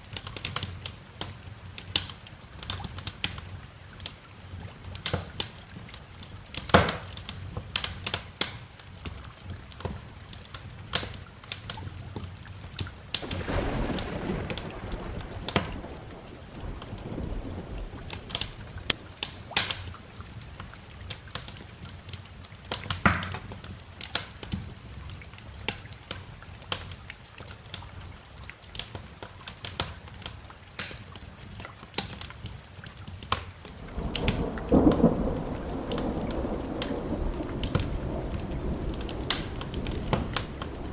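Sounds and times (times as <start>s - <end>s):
steady rain: 0.0s - 40.9s
wood fire crackling and popping: 10.5s - 27.0s, 28.7s - 40.9s
rumble of thunder: 13.1s - 21.4s, 33.7s - 40.9s.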